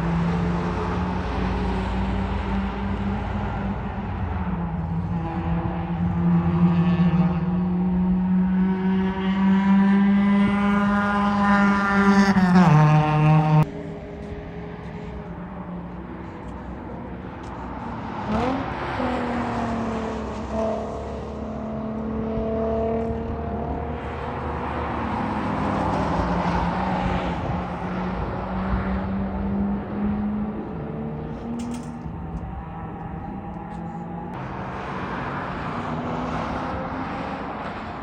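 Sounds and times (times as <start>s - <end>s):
sports car engines: 0.0s - 38.0s.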